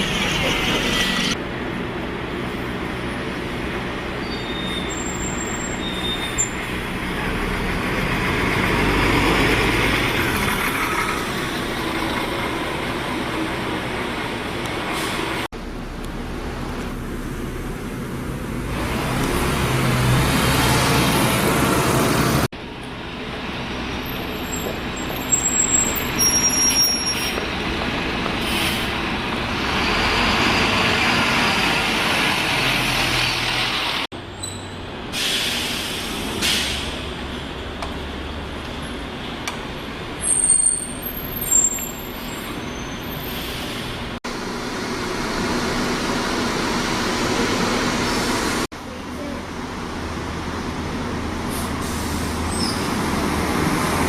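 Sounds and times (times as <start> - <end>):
bus brakes squealing: 0.0 - 1.4, 4.1 - 6.8, 24.0 - 27.4, 28.4 - 29.0, 32.8 - 37.3, 40.2 - 44.1, 51.5 - 53.0
buses running: 0.0 - 54.0.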